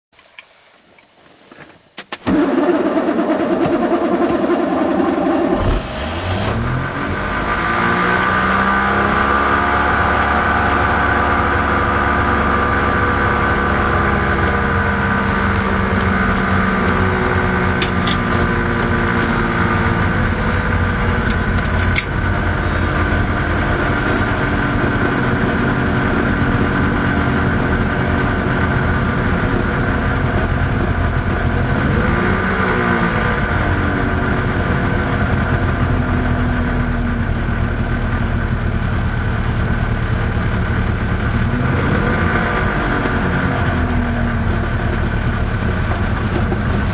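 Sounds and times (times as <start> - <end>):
two-stroke car engine idling: 9.9 - 46.9.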